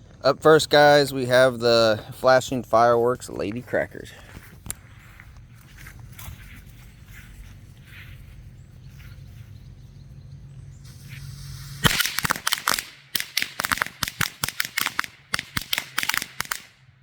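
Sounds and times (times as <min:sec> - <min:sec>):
firecrackers cracking: 0:10.9 - 0:16.7.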